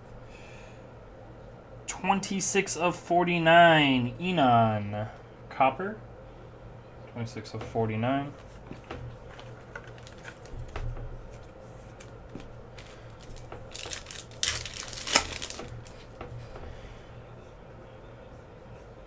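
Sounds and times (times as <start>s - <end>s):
card handling clicks: 8.7s - 16.0s
foil wrapper tearing and crinkling: 9.3s - 10.7s, 11.8s - 16.1s.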